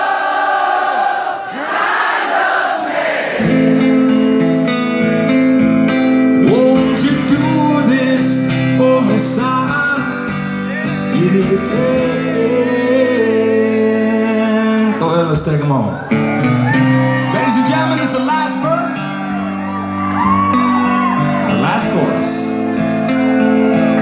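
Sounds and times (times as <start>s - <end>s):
crowd singing: 0.0s - 4.0s
acoustic guitar chords: 3.4s - 24.0s.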